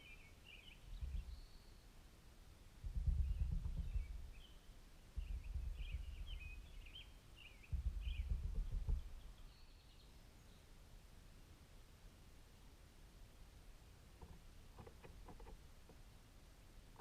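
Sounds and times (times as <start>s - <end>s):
small songbirds chirping: 0.0s - 11.3s
low rumble bursts: 7.6s - 9.3s.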